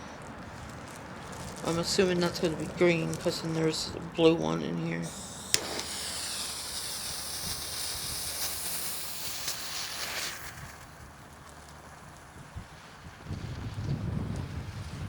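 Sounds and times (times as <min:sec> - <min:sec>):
low wind rumble: 0:00.0 - 0:15.0
smoke ball hissing: 0:05.0 - 0:15.0.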